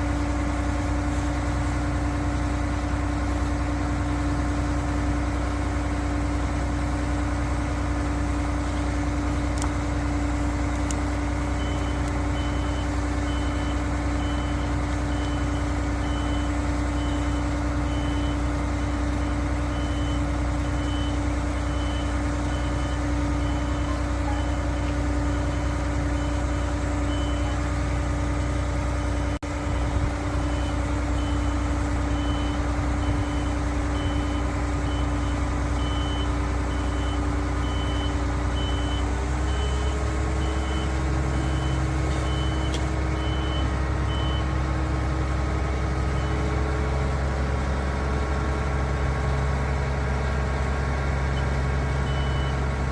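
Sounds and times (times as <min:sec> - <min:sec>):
diesel engine running: 0:00.0 - 0:52.9
high warning beeper: 0:19.8 - 0:27.7.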